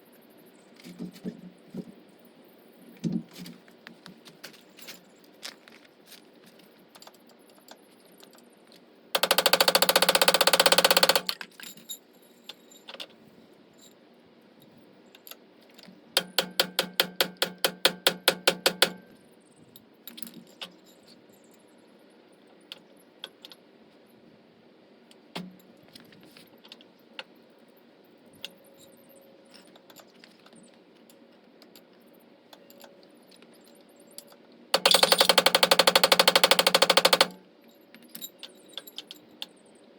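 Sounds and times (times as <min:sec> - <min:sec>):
impact wrench hammering: 0:09.2 - 0:11.3, 0:16.2 - 0:19.0, 0:34.8 - 0:37.4
tools and metal parts clinking: 0:09.2 - 0:13.2, 0:32.5 - 0:39.5.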